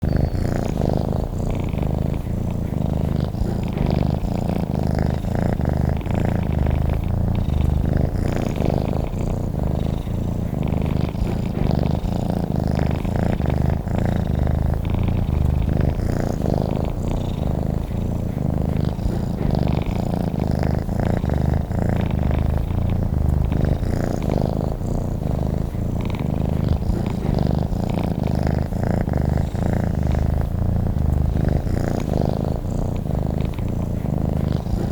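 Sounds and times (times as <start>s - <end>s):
cat purring: 0.0s - 34.9s.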